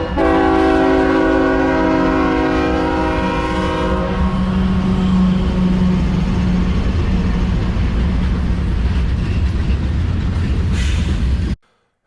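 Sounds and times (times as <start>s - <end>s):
locomotive air horn blast: 0.0s - 6.0s
train rumbling: 0.0s - 11.6s.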